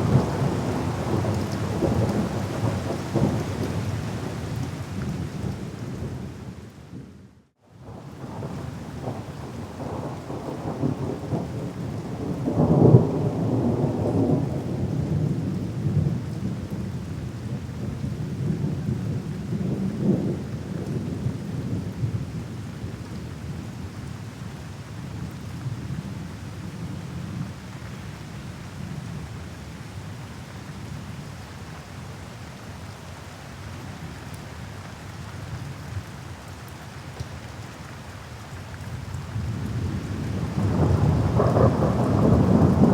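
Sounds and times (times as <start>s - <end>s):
steady rain: 0.0s - 42.9s
rolling thunder: 39.4s - 42.9s.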